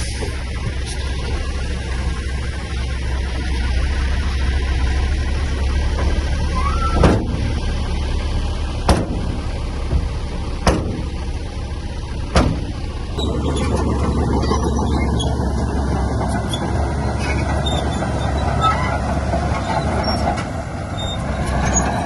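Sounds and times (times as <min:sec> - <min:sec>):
heavy diesel machinery drone: 0:00.0 - 0:22.0
sharp knocks: 0:07.0 - 0:07.5, 0:08.9 - 0:11.2, 0:12.3 - 0:12.8.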